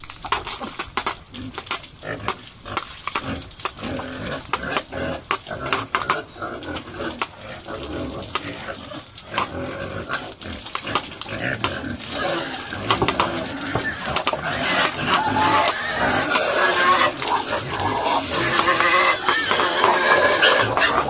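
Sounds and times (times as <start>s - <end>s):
pigs grunting and squealing: 0.4s - 21.0s
sharp clacks and knocks: 12.8s - 15.8s.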